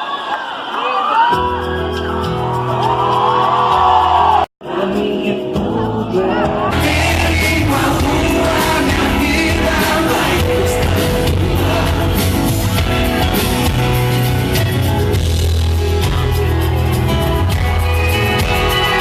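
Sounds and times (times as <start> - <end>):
live pop-rock band: 1.3 - 19.0
person singing: 4.6 - 13.8.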